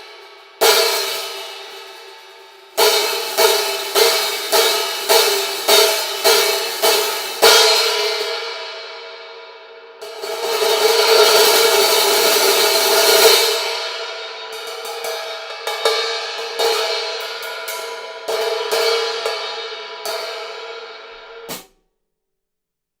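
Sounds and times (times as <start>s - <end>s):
hi-hat ringing and struck: 0.0s - 7.8s, 14.5s - 21.7s.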